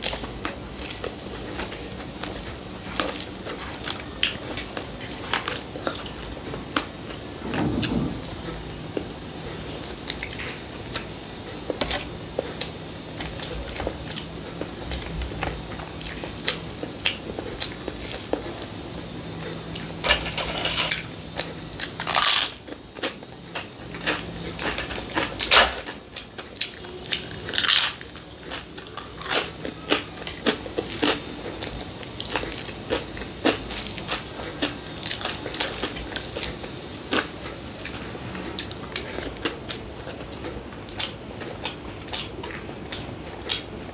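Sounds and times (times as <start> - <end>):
person chewing and crunching food: 20.5 - 43.8.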